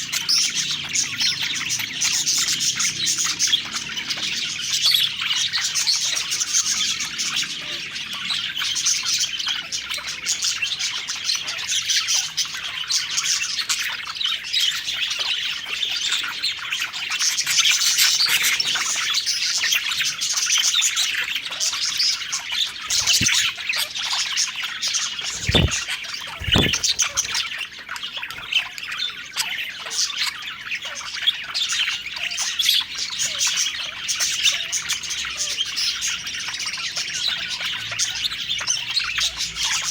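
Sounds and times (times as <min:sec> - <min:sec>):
budgerigars chirping: 0:22.6 - 0:23.6, 0:25.2 - 0:39.9
low thumps: 0:25.3 - 0:25.8, 0:26.4 - 0:27.4.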